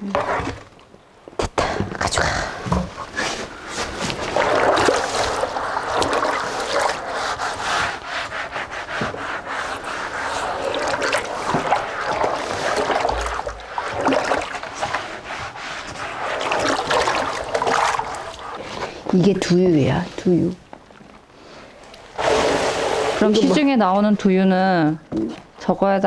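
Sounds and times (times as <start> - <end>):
cloth sack rubbing and pressing: 2.1 - 18.9.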